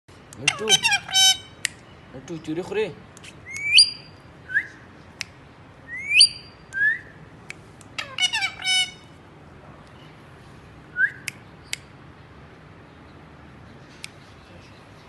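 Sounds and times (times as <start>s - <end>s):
parakeet calling: 0.4s - 2.0s, 5.9s - 6.6s, 8.0s - 9.2s.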